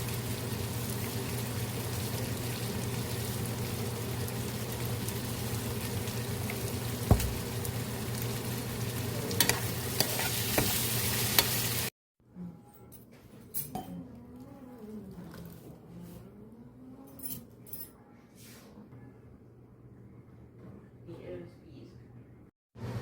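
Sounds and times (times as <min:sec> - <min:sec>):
food sizzling in a pan: 0:00.0 - 0:11.9.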